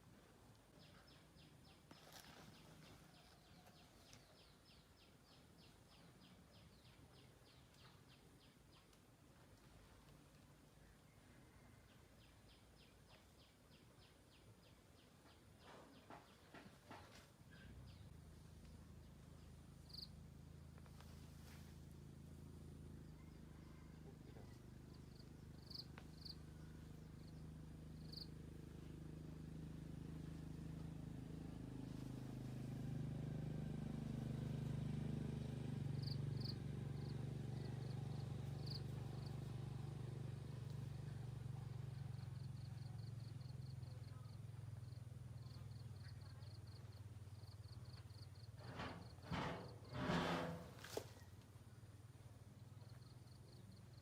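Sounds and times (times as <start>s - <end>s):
small bird chirping: 12.2s - 20.3s, 23.2s - 30.8s, 36.0s - 39.5s
faint low hum: 17.0s - 54.0s.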